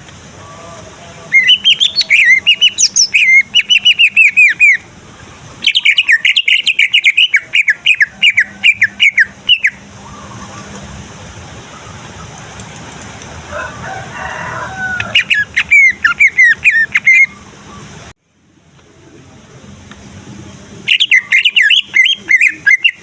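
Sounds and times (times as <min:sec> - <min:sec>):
bird singing swooping chirps: 0:01.3 - 0:04.9, 0:05.6 - 0:10.8, 0:15.0 - 0:18.1, 0:20.8 - 0:23.0.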